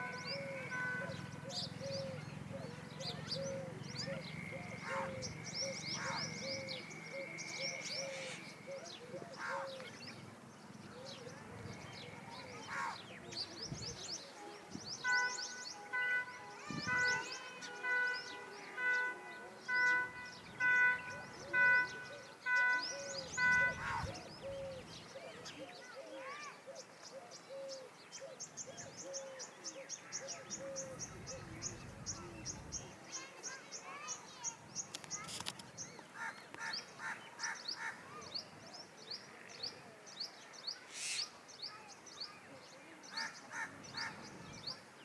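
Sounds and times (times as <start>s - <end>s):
peafowl honking calls: 0.0s - 9.8s, 15.0s - 24.9s, 43.1s - 44.6s
small birds chirping: 0.0s - 45.0s
small bird chirping: 40.6s - 42.2s.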